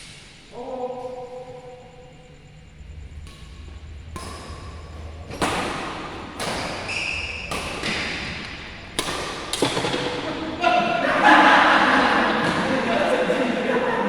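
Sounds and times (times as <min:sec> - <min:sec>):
rackets hitting shuttlecock: 0:03.2 - 0:10.8.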